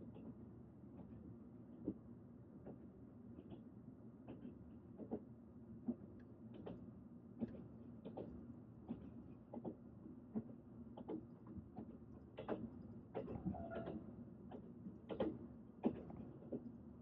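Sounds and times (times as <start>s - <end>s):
train clicks and knocks: 4.3s - 5.2s, 7.4s - 11.2s, 11.8s - 16.7s.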